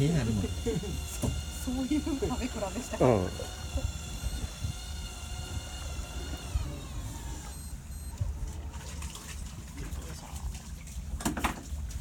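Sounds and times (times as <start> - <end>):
high motor whine: 0.0 - 8.4.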